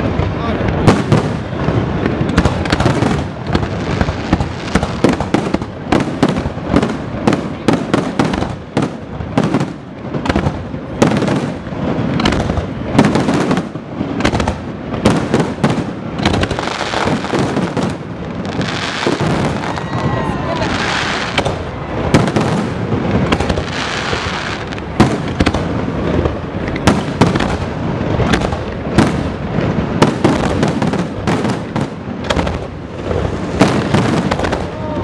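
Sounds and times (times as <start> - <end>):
firework shells bursting: 0.6 - 34.8.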